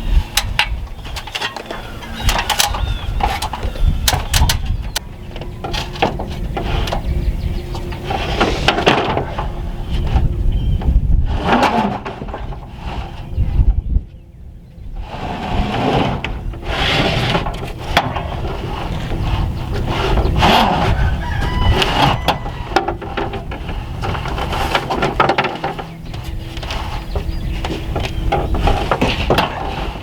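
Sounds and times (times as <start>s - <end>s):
wood sheet knocking and scraping: 7.7s - 13.3s, 15.2s - 30.0s
rooster crowing: 20.9s - 23.0s.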